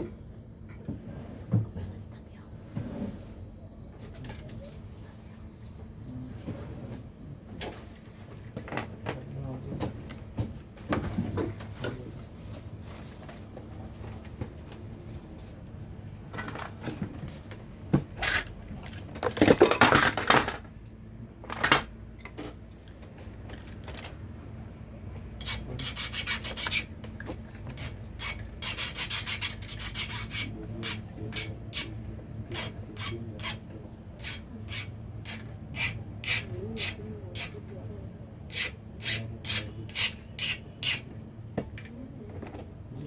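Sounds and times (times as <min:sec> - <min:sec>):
scraping strokes on hard surface: 0:00.9 - 0:01.6, 0:02.6 - 0:03.4, 0:25.4 - 0:37.6, 0:38.5 - 0:41.1.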